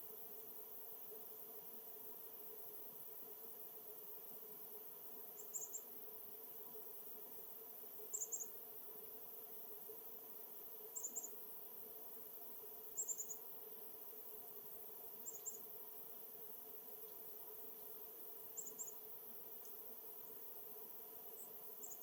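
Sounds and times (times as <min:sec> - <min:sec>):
faint steady background hiss: 0:00.0 - 0:22.0
small bird high thin calls: 0:05.4 - 0:05.8, 0:08.1 - 0:08.5, 0:13.0 - 0:13.4, 0:18.6 - 0:19.0.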